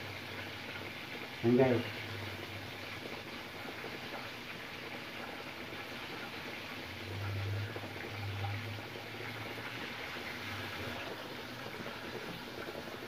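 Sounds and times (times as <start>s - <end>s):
liver sizzling in hot oil: 0.0s - 13.0s.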